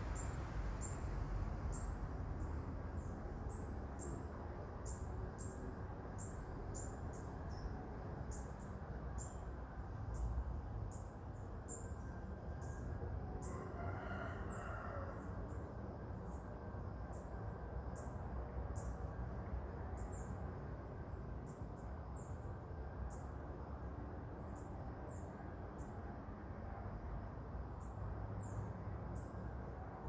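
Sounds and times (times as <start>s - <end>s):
low background rumble: 0.0s - 4.0s.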